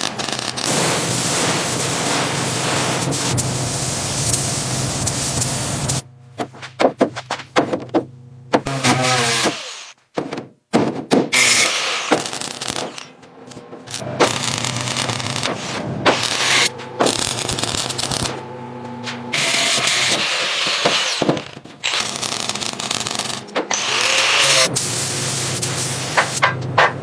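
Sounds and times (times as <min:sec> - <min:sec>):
power tool whirring and scraping: 0:08.7 - 0:10.0, 0:11.3 - 0:25.1.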